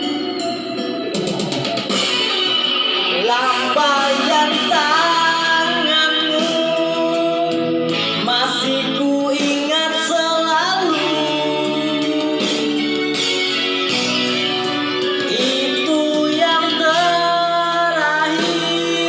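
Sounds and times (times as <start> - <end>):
guitar accompaniment: 0.0 - 19.0
person singing: 0.0 - 19.0.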